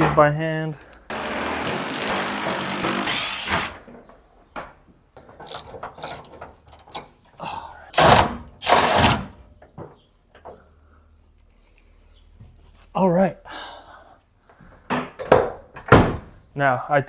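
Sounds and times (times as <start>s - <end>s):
loud rasping bursts: 1.1s - 3.9s, 8.0s - 9.3s
ratchet wrench clicking: 5.5s - 7.0s.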